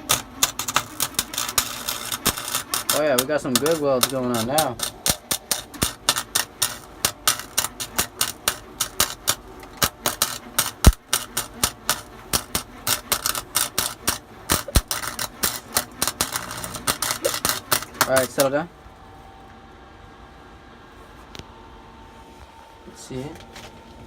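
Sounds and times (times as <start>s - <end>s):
welding arc crackling: 0.0s - 18.7s.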